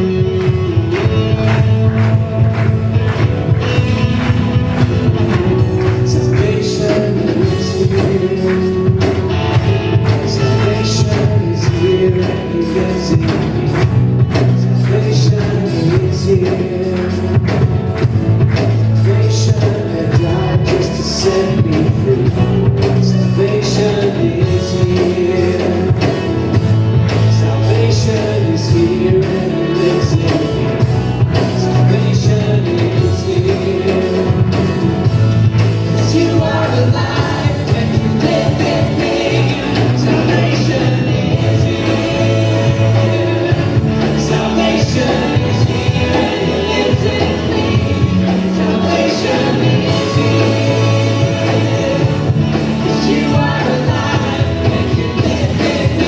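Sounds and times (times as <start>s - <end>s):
bass line: 0.0s - 56.0s
steady drum beat: 0.0s - 56.0s
worship band playing: 0.0s - 56.0s
person singing: 4.8s - 17.8s, 18.6s - 26.4s, 27.0s - 35.0s, 35.8s - 56.0s.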